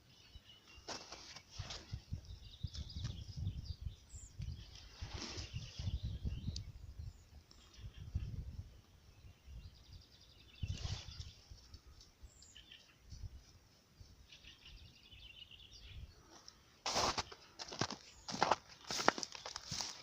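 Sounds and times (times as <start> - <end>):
songbirds trilling: 0.0 - 13.4
loud rustling crunch: 0.7 - 3.2, 16.2 - 20.0.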